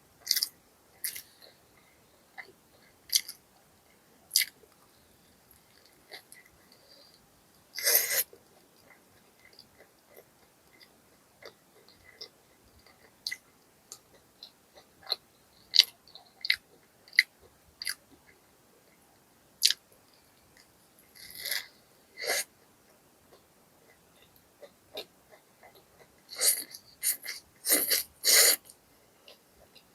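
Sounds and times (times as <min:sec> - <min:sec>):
person chewing food: 0:00.2 - 0:01.6, 0:03.1 - 0:03.4, 0:04.3 - 0:04.6, 0:07.8 - 0:18.4, 0:19.6 - 0:19.8, 0:23.3 - 0:29.9.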